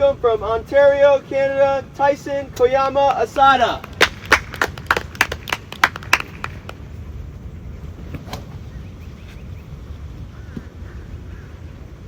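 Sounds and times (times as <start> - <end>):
wind on microphone: 2.3 - 12.0
people clapping: 3.1 - 6.8.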